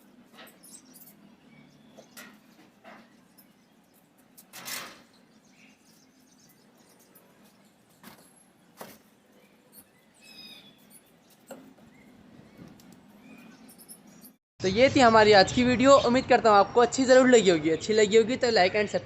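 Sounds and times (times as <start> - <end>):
knocks and rustles: 1.9 - 5.3, 6.9 - 9.9, 10.8 - 14.3.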